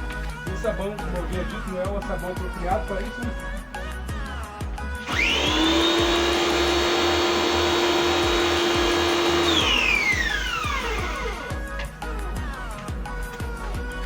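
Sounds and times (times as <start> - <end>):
pressure washer motor whining: 5.0 - 11.6.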